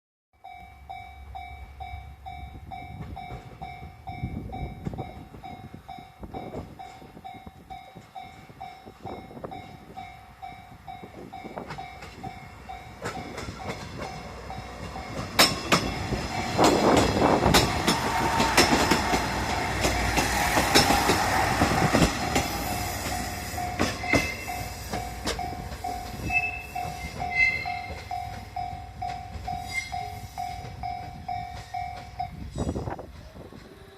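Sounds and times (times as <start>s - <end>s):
diesel railcar engine rumbling: 0.4s - 33.9s
wheels clacking over rail joints: 11.3s - 33.9s.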